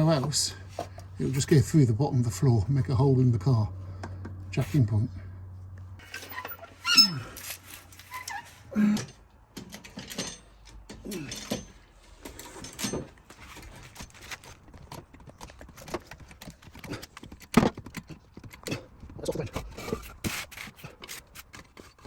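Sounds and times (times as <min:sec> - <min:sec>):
car jack creaking: 0:06.0 - 0:22.0.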